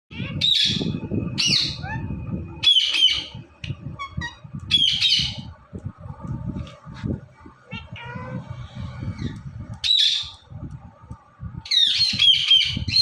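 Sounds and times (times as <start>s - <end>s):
parakeet squawking: 0.1s - 3.4s, 4.0s - 5.4s, 7.7s - 8.5s.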